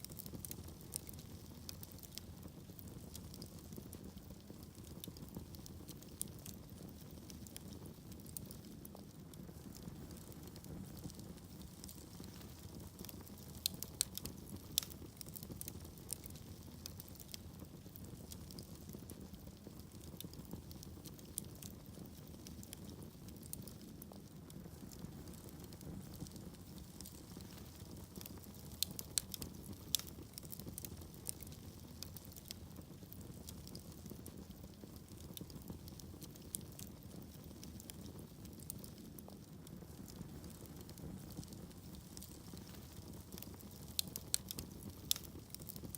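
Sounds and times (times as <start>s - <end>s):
low rumble of flames: 0.0s - 45.9s
wood fire crackling: 0.0s - 45.9s
sharp pops and snaps: 19.8s - 39.0s, 39.6s - 45.9s.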